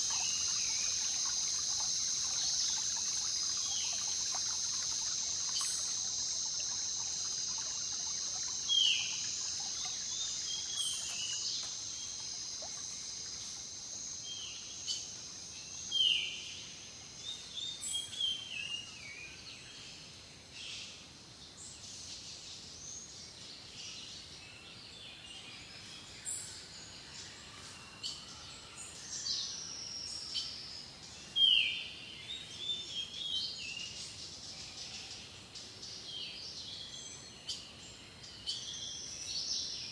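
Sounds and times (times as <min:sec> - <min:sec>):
bird chirps: 0:00.0 - 0:13.5
high insect drone: 0:00.0 - 0:17.2.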